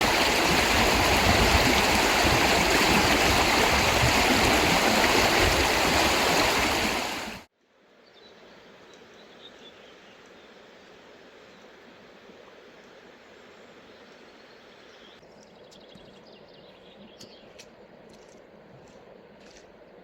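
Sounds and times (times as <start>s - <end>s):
stream water rushing: 0.0s - 7.5s.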